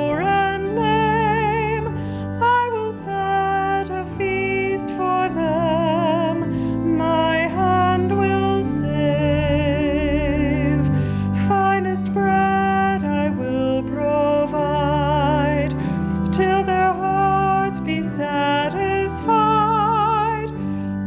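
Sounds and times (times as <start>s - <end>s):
sustained musical accompaniment: 0.0s - 21.0s
woman singing slow song: 11.4s - 15.5s.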